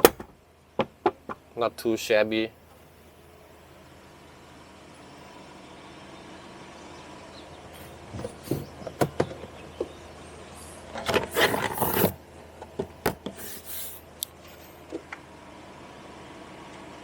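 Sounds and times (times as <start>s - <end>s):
scraping rub: 11.3s - 12.2s.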